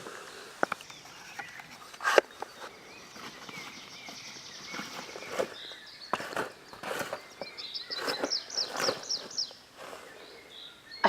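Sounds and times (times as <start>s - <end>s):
small bird chirping: 0.6s - 11.0s
footsteps crunching on ground: 1.4s - 10.2s.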